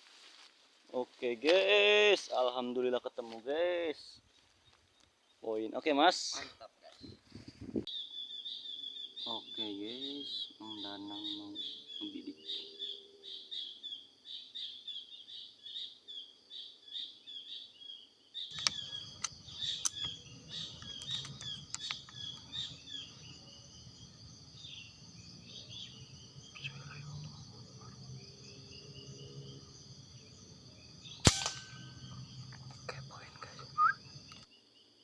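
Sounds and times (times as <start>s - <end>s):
small birds chirping: 2.0s - 35.0s
faint clicks: 18.5s - 22.5s
high-pitched insect drone: 18.5s - 34.5s
sharp gunshot crack: 31.2s - 31.9s.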